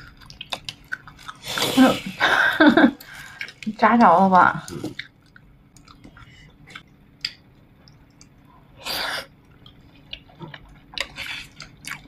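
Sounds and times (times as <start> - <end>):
person gnawing on ribs: 0.0 - 1.7, 9.6 - 12.0.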